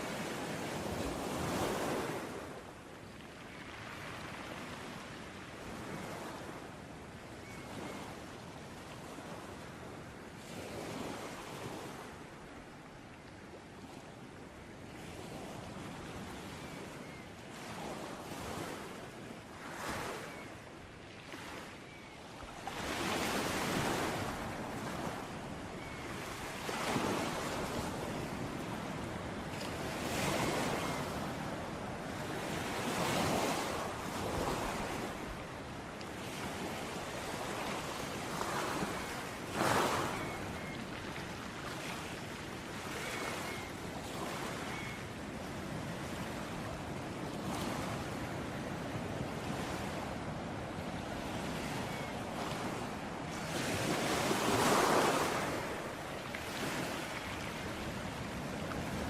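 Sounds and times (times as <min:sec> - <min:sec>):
sea waves breaking on beach: 0:19.5 - 0:59.0.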